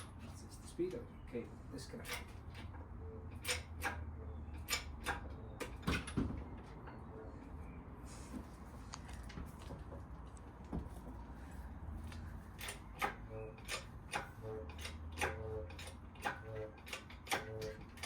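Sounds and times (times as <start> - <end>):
clicks and knocks of tools: 1.9 - 7.0, 12.1 - 18.0.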